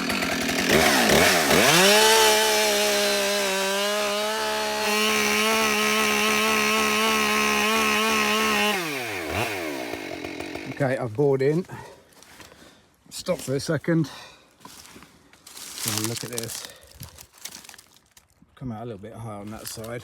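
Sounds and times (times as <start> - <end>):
chainsaw cutting into wood: 0.0 - 11.0, 15.5 - 18.0.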